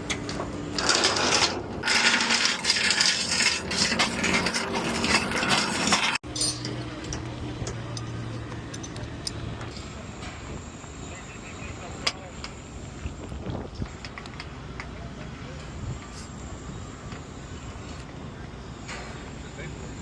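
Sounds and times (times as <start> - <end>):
metallic rattling and clinking: 0.0 - 9.9
low engine-like hum: 3.7 - 20.0.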